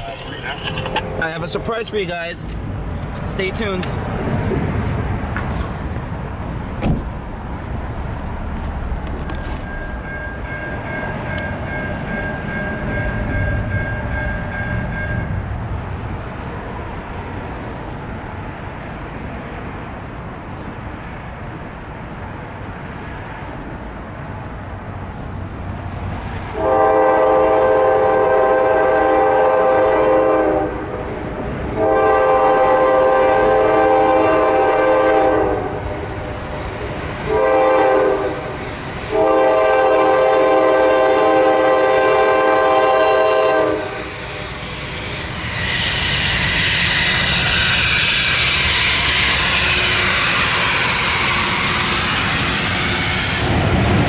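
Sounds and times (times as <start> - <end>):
train wheels on rails: 0.0 - 54.0
train horn blasts: 0.2 - 1.8, 26.5 - 31.0, 31.8 - 36.1, 37.3 - 38.5, 39.1 - 44.4, 45.8 - 53.6.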